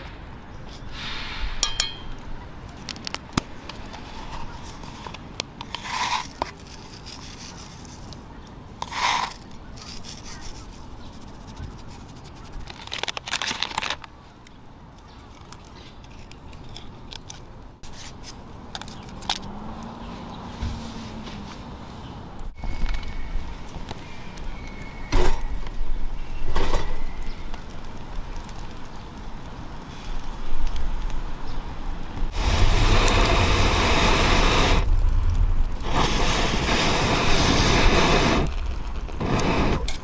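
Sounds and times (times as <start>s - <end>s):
handling scrapes and rustles: 2.8s - 14.1s, 15.0s - 23.2s.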